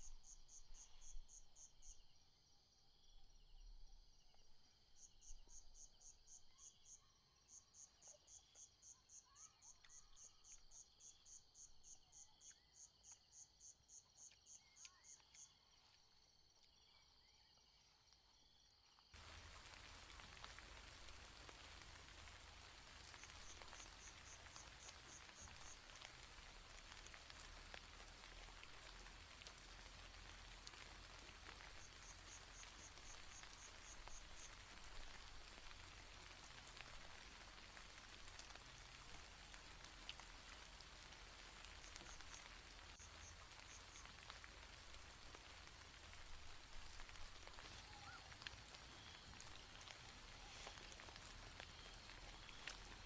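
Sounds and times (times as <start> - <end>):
insects chirping in pulses: 19.2 - 47.6
rain hiss: 19.2 - 53.0.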